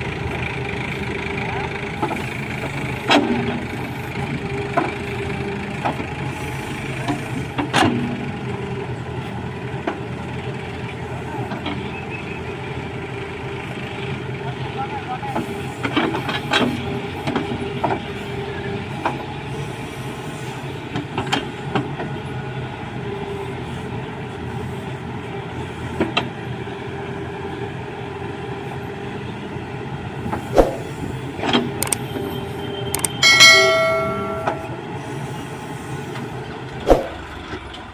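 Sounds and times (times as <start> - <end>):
diesel engine running: 0.0 - 37.9
loud metallic clang: 33.1 - 34.8
metal knocks: 33.2 - 34.7.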